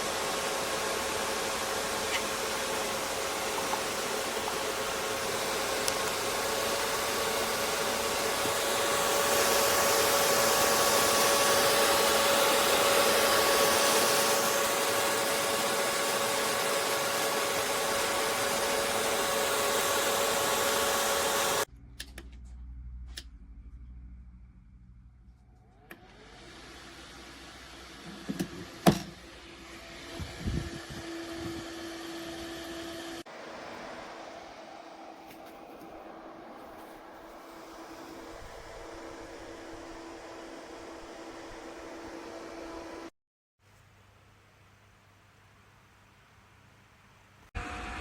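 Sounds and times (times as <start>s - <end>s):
small fan whooshing: 29.2s - 43.1s.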